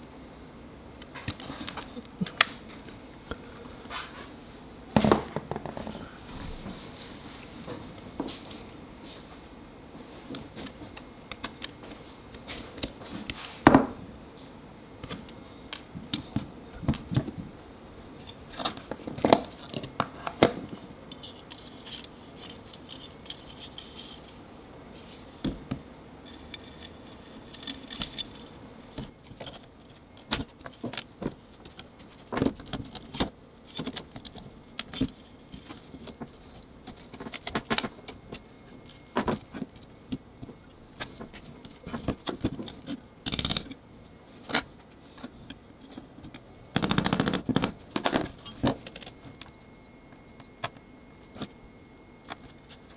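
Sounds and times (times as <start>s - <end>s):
small parts and tools clattering: 18.2s - 24.4s, 25.0s - 43.8s, 46.7s - 49.8s.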